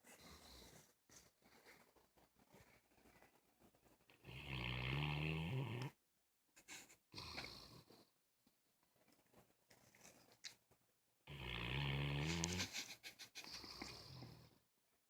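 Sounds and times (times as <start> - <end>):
dog snoring: 4.2 - 6.0, 11.3 - 12.7.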